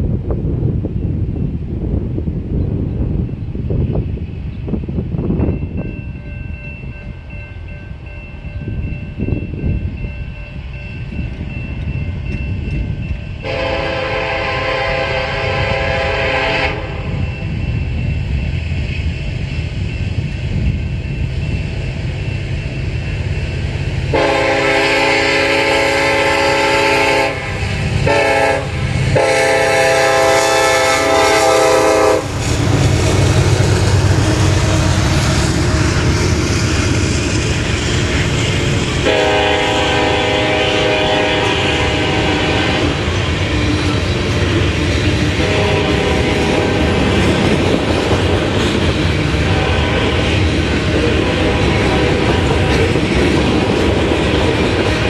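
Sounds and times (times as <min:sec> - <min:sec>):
diesel locomotives rumbling: 0:00.0 - 0:55.0
locomotive horn blasts: 0:13.4 - 0:17.2, 0:24.1 - 0:33.5, 0:39.0 - 0:43.1, 0:45.3 - 0:47.3, 0:49.4 - 0:53.1.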